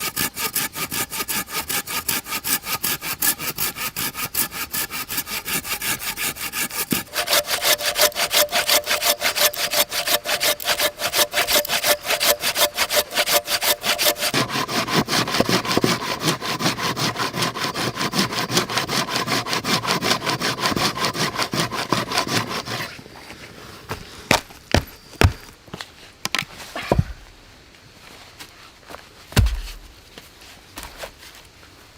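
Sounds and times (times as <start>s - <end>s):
hand saw cutting wood: 0.0s - 23.0s
knocks: 29.4s - 30.0s.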